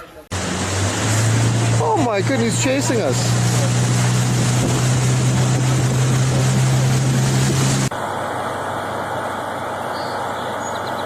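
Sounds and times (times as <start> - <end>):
motor engine humming: 0.3 - 11.0
rushing wind noise: 0.4 - 7.9.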